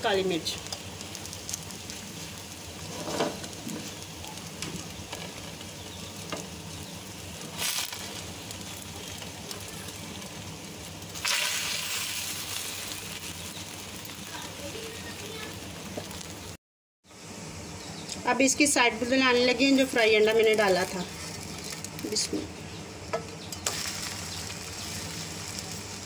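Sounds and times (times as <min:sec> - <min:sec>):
bread frying sizzle: 0:00.0 - 0:26.0
spatula scraping pan: 0:02.8 - 0:04.0.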